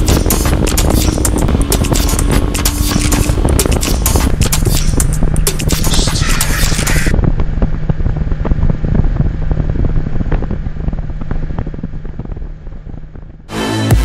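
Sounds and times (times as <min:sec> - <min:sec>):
wind rush on microphone: 0:00.0 - 0:13.5
motorcycle engine running: 0:00.0 - 0:14.0.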